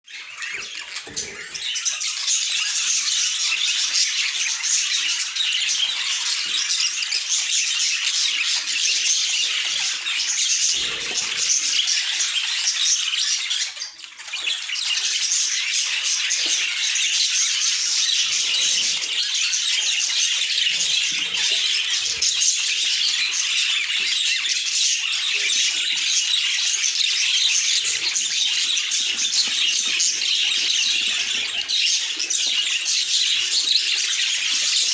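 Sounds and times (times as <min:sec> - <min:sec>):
budgerigars chirping and chattering: 0:00.1 - 0:34.9.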